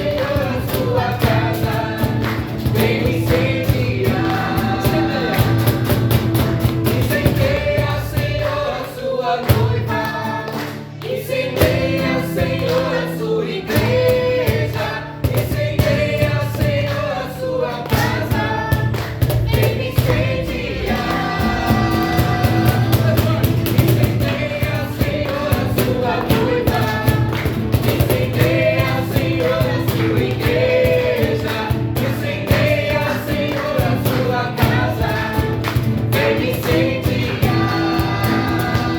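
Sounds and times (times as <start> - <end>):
band with bass and beat: 0.0 - 8.6, 17.9 - 38.9
gospel choir singing: 0.0 - 38.9.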